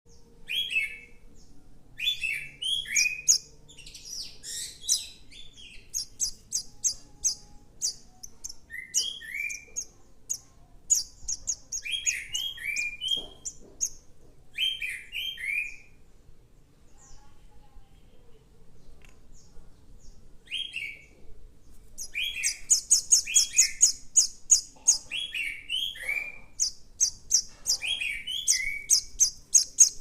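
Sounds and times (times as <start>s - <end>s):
young bird begging chirps: 2.1s - 3.5s, 4.2s - 13.6s, 22.0s - 30.0s.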